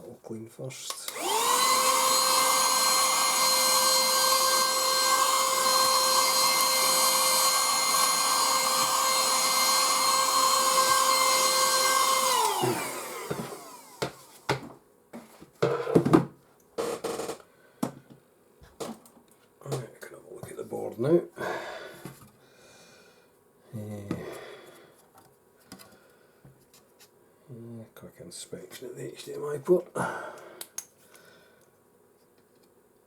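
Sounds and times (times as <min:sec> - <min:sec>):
handheld vacuum cleaner running: 0:00.9 - 0:14.7.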